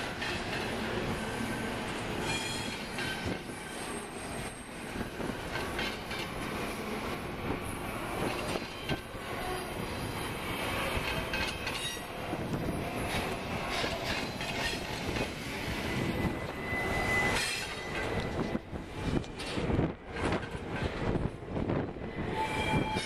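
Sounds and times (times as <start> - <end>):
freight train rumbling by: 0.0 - 23.0
wheel squeal: 11.0 - 18.6, 22.1 - 23.0.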